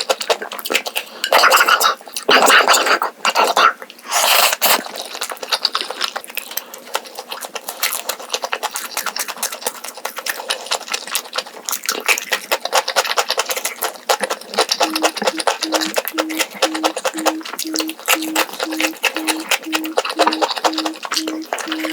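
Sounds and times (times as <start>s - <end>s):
chewing and slurping food: 0.0s - 21.9s
low beeping tone: 14.8s - 21.9s.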